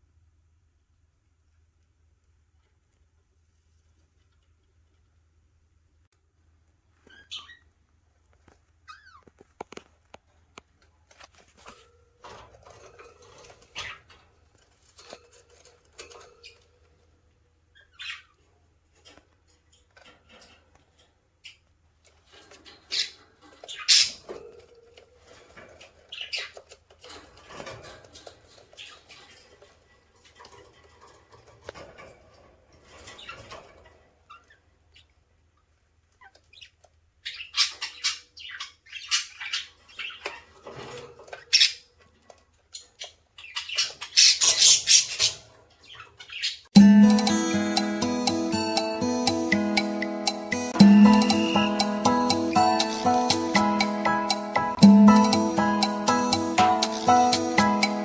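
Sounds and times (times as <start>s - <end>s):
budgerigar chicks chirping: 17.8s - 18.4s, 22.8s - 24.4s, 25.7s - 26.8s, 36.2s - 40.6s, 42.7s - 46.7s.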